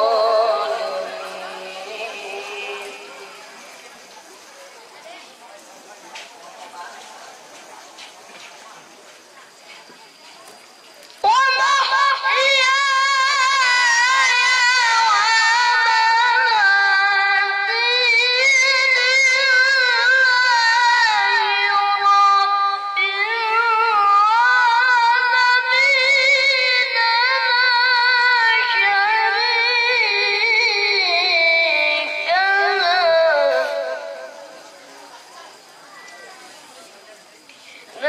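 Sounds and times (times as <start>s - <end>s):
child reciting melodically: 11.2s - 34.6s.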